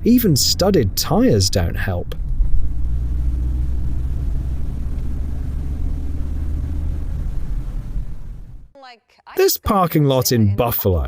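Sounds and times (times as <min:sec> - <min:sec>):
road vehicles rumbling: 0:00.0 - 0:08.7.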